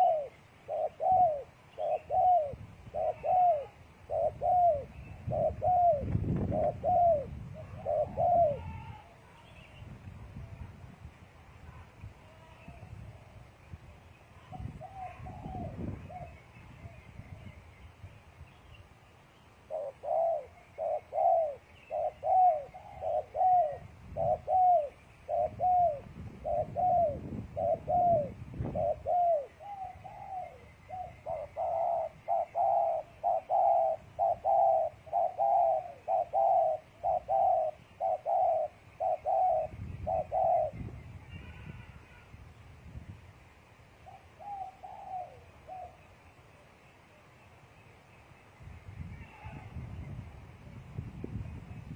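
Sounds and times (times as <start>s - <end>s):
dove cooing: 0.0s - 9.4s, 14.4s - 17.5s, 19.7s - 41.9s, 44.0s - 46.1s, 49.2s - 49.8s.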